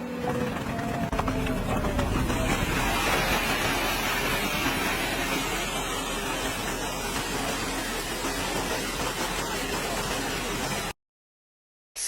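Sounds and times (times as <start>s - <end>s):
heavy machinery rumble: 0.0s - 10.9s.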